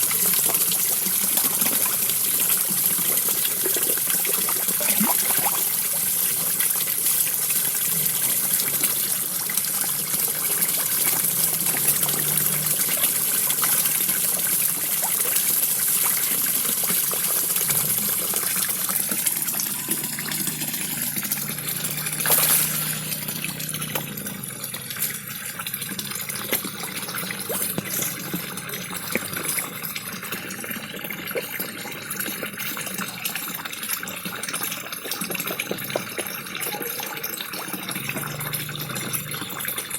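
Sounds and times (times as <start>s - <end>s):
small waterfall splashing into pond: 0.0s - 39.9s
louder water splash: 21.8s - 23.7s.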